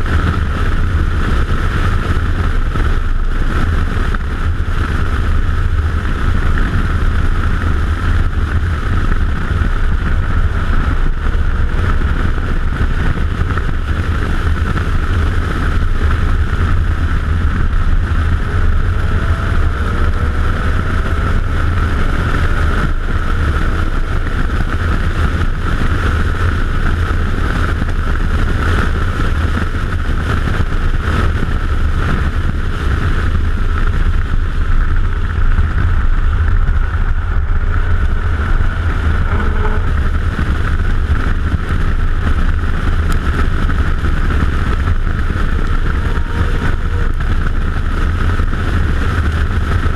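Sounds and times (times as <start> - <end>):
car engine low drone: 0.0 - 49.9
wind and road noise: 0.0 - 49.9
faint gliding tones: 36.7 - 41.6.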